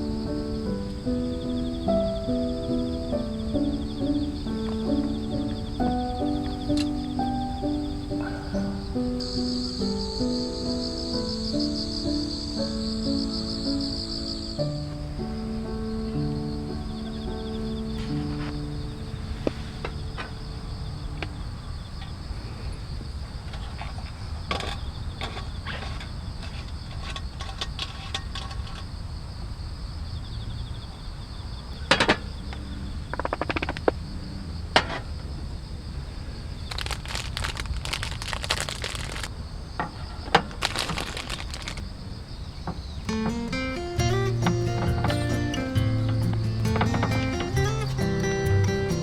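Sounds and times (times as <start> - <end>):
insects trilling: 0.0 - 49.0
sharp clicks and knocks: 33.1 - 34.0.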